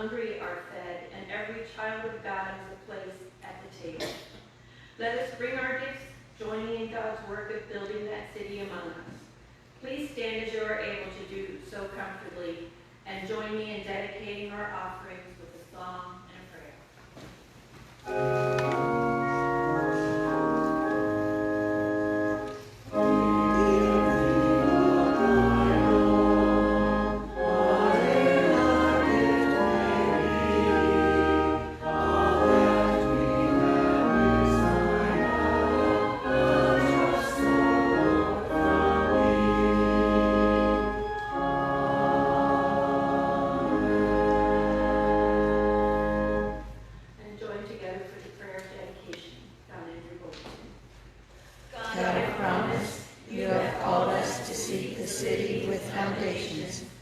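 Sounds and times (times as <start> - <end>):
congregation singing: 18.0 - 46.7, 51.8 - 57.0
church organ playing: 18.0 - 47.1.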